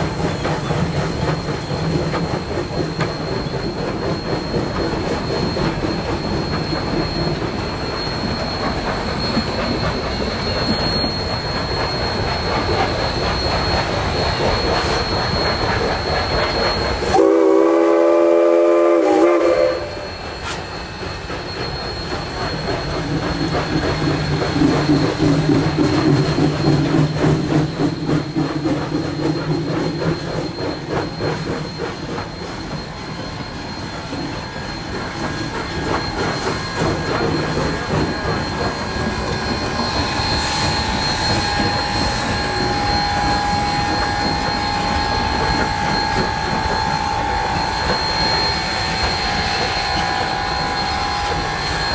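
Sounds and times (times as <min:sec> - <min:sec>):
steam train on rails: 0:00.0 - 0:51.9
thin high squeal: 0:00.1 - 0:17.2, 0:19.1 - 0:51.9
steam whistle: 0:16.4 - 0:21.3, 0:35.1 - 0:51.9.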